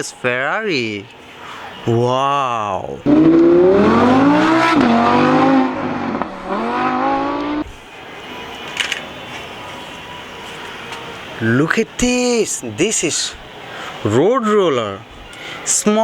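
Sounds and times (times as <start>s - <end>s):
sports car engine revving: 3.0s - 7.7s
faint hiss: 14.8s - 16.0s.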